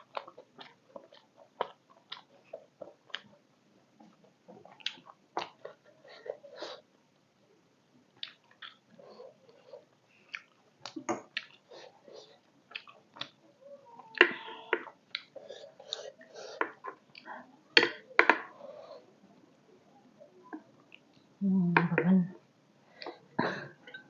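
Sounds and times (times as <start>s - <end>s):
close chewing and smacking: 0.0s - 6.9s, 8.1s - 19.0s.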